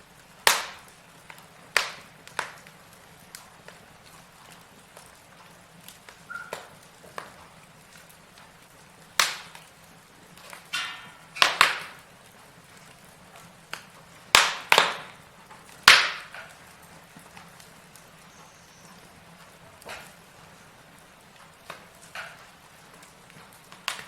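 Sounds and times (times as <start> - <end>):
logs crackling in fireplace: 0.0 - 24.0.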